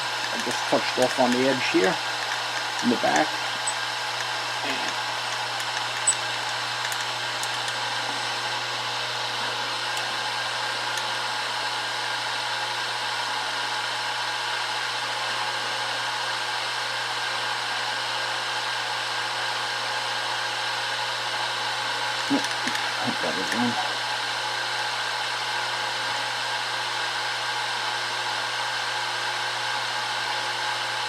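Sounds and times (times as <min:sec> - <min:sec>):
milling machine motor whir: 0:00.0 - 0:12.4.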